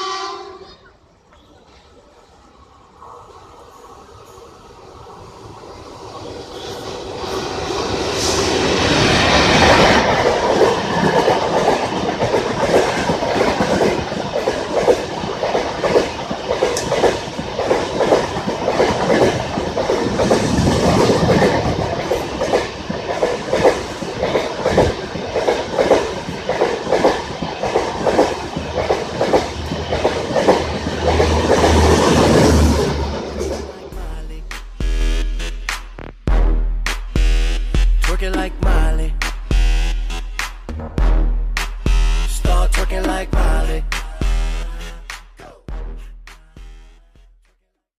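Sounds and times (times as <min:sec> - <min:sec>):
train passing: 0:00.0 - 0:47.2
train wheels clattering over rail joints: 0:07.2 - 0:33.8.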